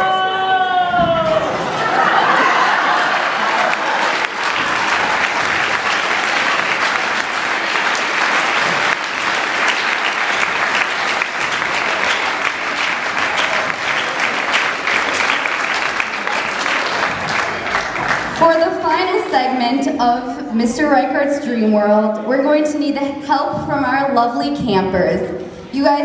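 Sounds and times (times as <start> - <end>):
audience applause: 0.9 - 18.6.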